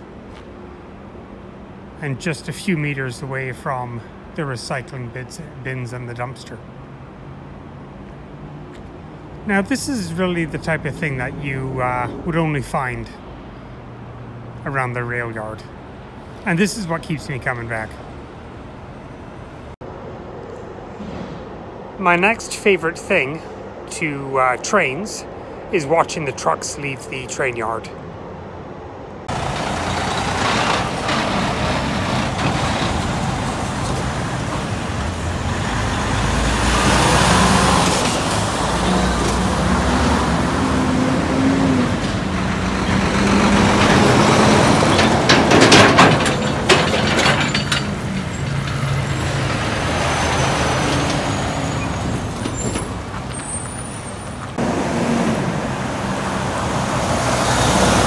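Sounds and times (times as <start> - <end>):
diesel truck engine revving: 29.2 - 58.0
metal clanking: 42.1 - 53.5.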